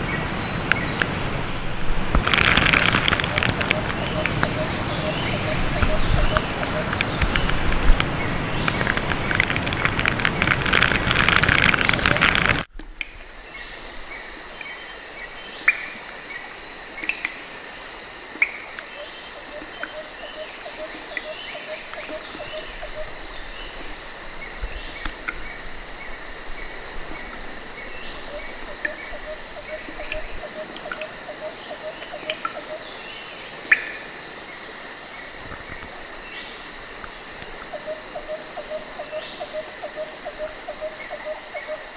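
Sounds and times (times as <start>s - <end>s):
bird chirps: 0.0s - 12.6s
insects buzzing: 0.0s - 41.9s.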